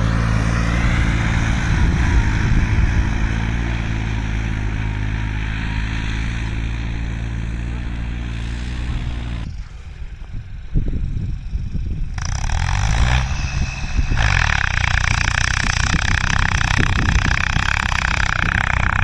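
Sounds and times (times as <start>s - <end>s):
tractor diesel engine running hard: 0.0s - 19.0s
loud rushing hiss: 12.9s - 16.8s.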